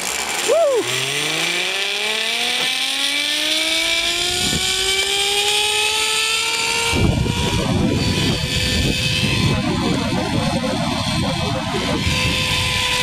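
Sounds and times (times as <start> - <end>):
zipline pulley whine: 0.0 - 13.0
rough rumbling: 6.9 - 13.0.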